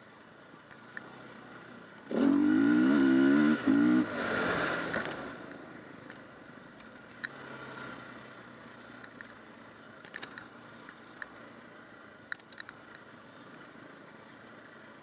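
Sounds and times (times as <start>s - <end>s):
motorcycle engine revving: 2.0s - 5.5s, 7.2s - 8.4s.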